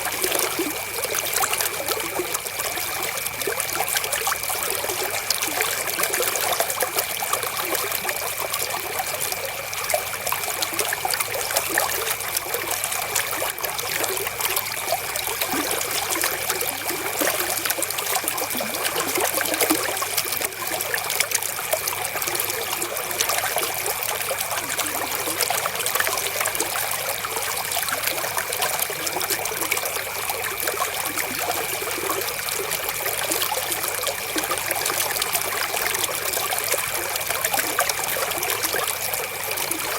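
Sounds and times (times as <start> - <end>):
river water splashing: 9.8 - 39.9.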